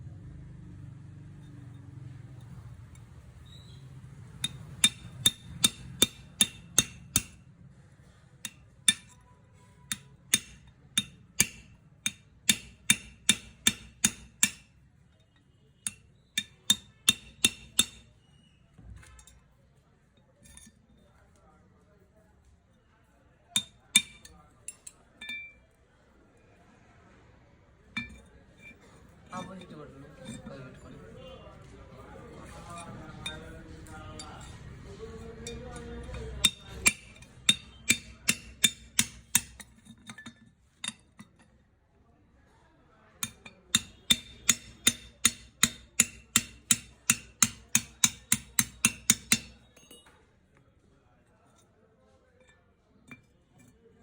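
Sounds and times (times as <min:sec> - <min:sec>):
hammer striking metal: 0:04.3 - 0:07.4, 0:08.4 - 0:14.8, 0:15.8 - 0:18.2, 0:23.6 - 0:24.4, 0:25.2 - 0:25.6, 0:35.4 - 0:41.1, 0:43.2 - 0:50.2
metal tools clinking on metal: 0:23.6 - 0:25.6, 0:28.0 - 0:31.1, 0:43.2 - 0:50.3.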